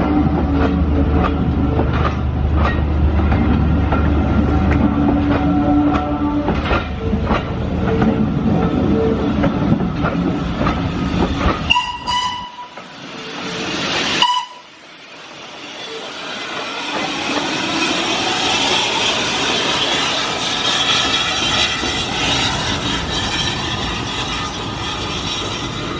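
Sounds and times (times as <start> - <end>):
wheels clicking over rail joints: 0.0 - 13.0
train rumbling on rails: 0.0 - 25.9.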